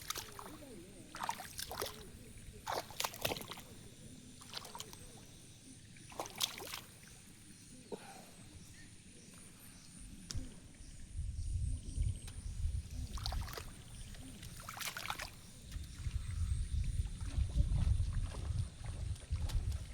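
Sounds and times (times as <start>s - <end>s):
shallow water sloshing and splashing: 0.0s - 8.0s, 12.5s - 19.9s.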